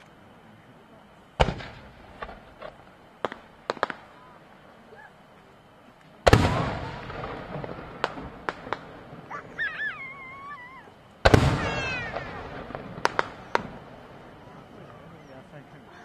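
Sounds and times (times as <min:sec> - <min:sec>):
sharp firework cracks: 0:01.4 - 0:04.3, 0:06.0 - 0:14.4
firework shells booming: 0:01.4 - 0:04.4, 0:06.2 - 0:15.0.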